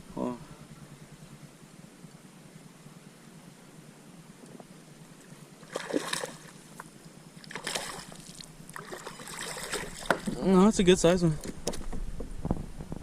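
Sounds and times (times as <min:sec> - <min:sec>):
water splashing: 0:05.2 - 0:10.5.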